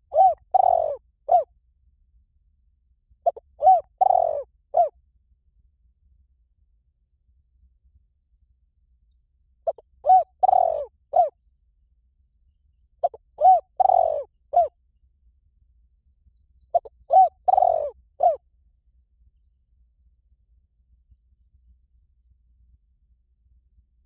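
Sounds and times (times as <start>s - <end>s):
dove cooing: 0.0s - 1.5s, 3.2s - 4.9s, 9.7s - 11.3s, 13.0s - 14.7s, 16.8s - 18.4s.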